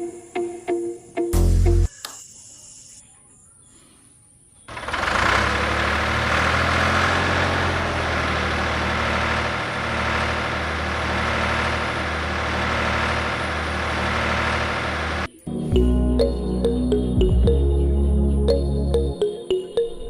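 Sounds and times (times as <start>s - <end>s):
tractor engine humming: 4.7s - 17.6s.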